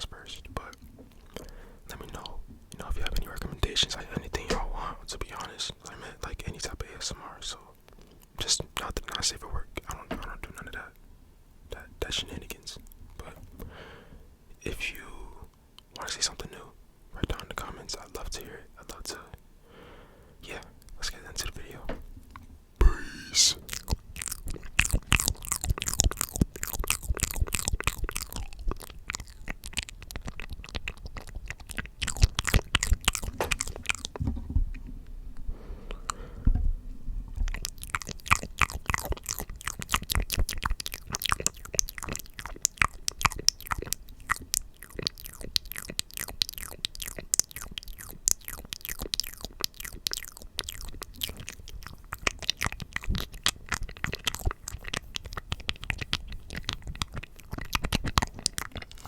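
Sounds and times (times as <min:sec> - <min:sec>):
wet mouth clicks and smacks: 0:00.0 - 0:04.6, 0:07.9 - 0:10.8, 0:20.8 - 0:34.2, 0:35.9 - 0:36.6, 0:37.3 - 0:59.0.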